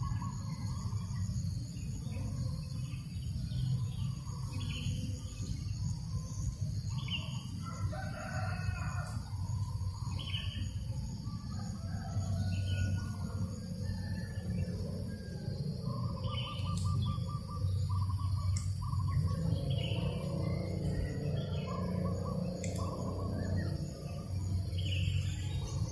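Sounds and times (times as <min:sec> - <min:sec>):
low rumble of breeze: 0:00.0 - 0:25.9
rooster crowing: 0:07.6 - 0:09.5, 0:11.5 - 0:14.8.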